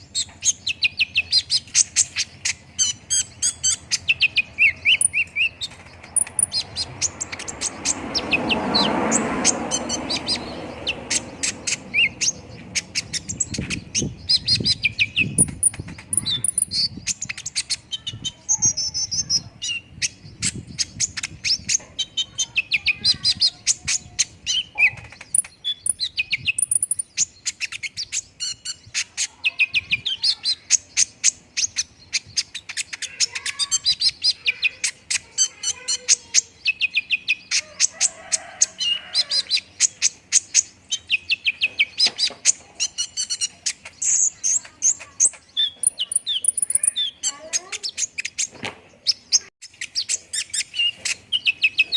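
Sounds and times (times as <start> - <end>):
high bird chirps and twitters: 0.0 - 51.9
broad rushing noise: 5.4 - 17.3.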